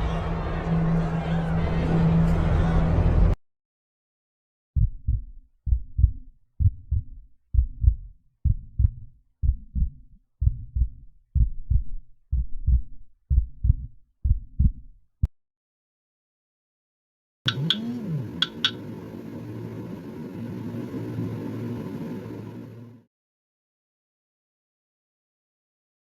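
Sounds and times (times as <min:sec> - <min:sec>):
heartbeat double thump: 0:04.8 - 0:15.0.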